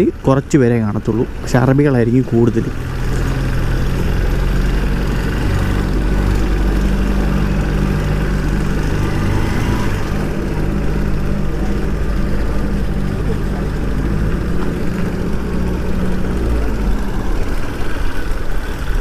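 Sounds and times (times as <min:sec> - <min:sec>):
motorcycle engine running: 0:00.0 - 0:19.0
road noise rushing: 0:00.0 - 0:19.0.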